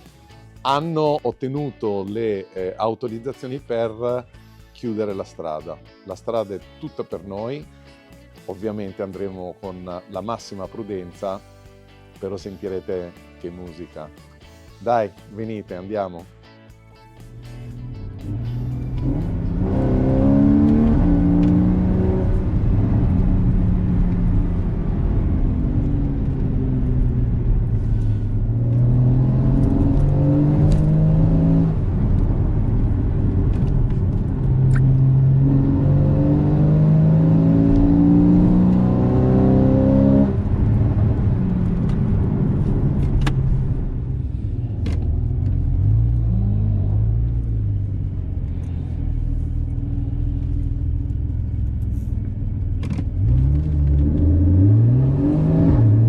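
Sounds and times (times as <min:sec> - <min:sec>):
exhaust cracks: 0:17.3 - 0:35.9, 0:40.2 - 0:54.7
car engine accelerating hard: 0:17.5 - 0:56.0.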